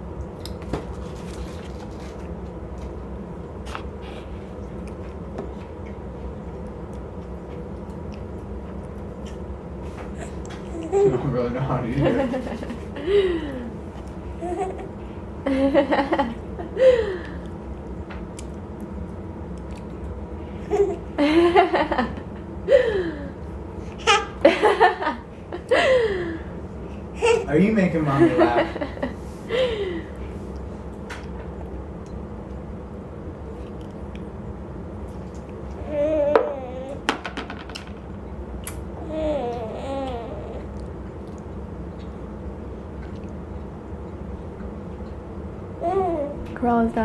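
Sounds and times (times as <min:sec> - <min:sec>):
low room hum: 0:00.0 - 0:47.0
woman laughing: 0:12.0 - 0:13.8, 0:15.5 - 0:17.1, 0:21.2 - 0:23.3, 0:24.4 - 0:26.4, 0:28.2 - 0:30.0.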